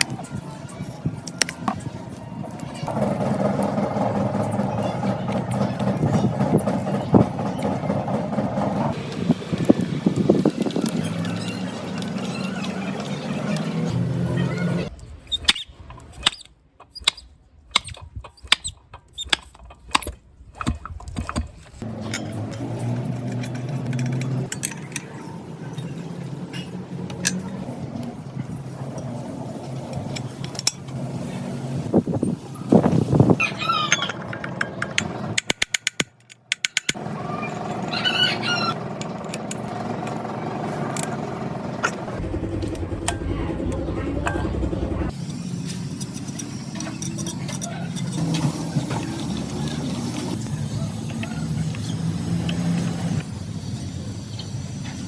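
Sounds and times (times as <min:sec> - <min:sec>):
generator engine running: 0:01.8 - 0:14.9, 0:37.0 - 0:53.2
metal parts and tools clicking: 0:14.9 - 0:31.0, 0:33.8 - 0:37.0, 0:45.1 - 0:51.9
motor hum: 0:36.8 - 0:50.4.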